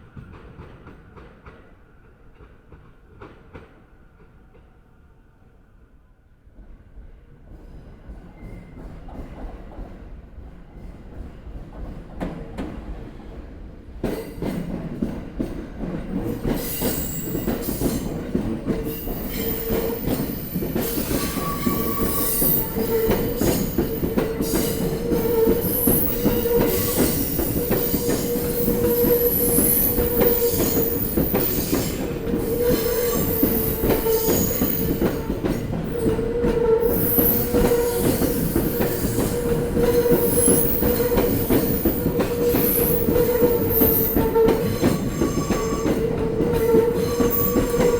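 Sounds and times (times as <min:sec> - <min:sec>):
train wheels knocking on rail joints: 0:14.0 - 0:47.9
steady train tone: 0:15.8 - 0:47.9.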